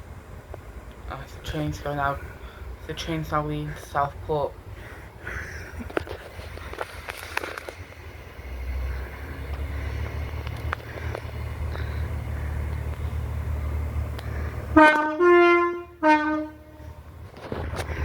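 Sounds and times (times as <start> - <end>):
diesel train engine rumble: 0.0 - 18.0
two-tone train horn: 14.7 - 17.0.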